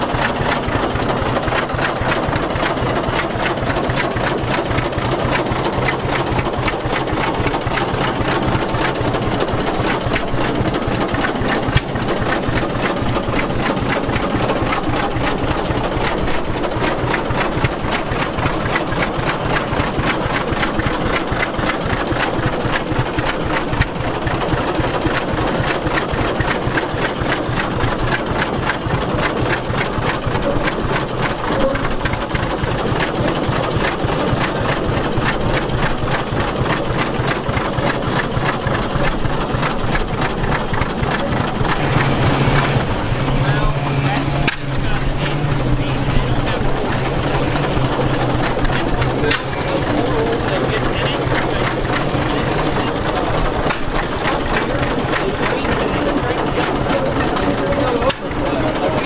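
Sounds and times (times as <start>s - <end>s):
stationary gas engine running: 0.0s - 59.0s.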